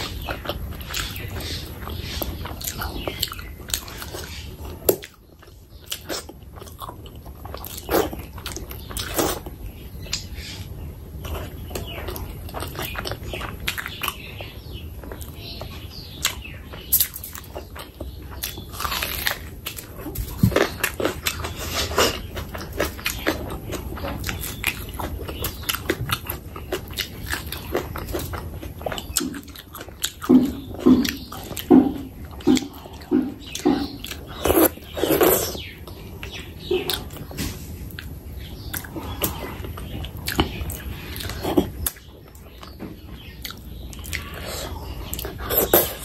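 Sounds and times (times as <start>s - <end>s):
wet chewing and biting: 11.2s - 46.0s.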